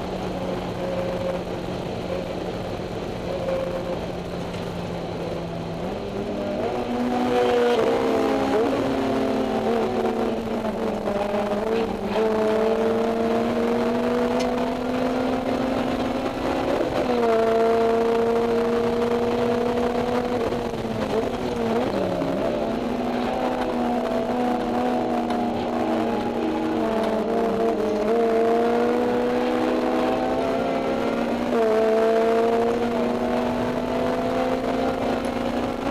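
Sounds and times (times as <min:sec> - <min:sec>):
car engine at high revs: 0:00.0 - 0:35.9.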